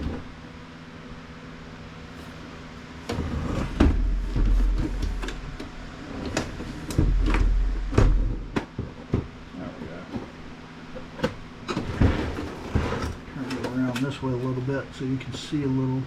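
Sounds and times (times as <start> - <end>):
low rumbling of casing moved: 2.0 - 13.5.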